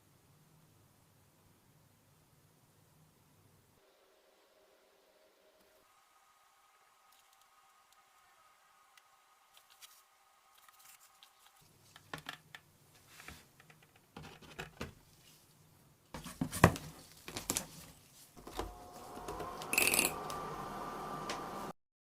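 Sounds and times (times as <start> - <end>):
steady hum with faint tone: 18.2 - 21.7.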